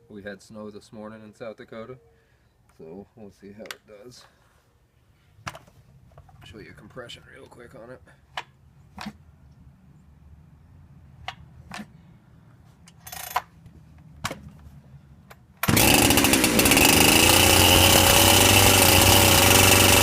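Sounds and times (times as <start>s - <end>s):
chainsaw running loudly: 15.6s - 20.0s.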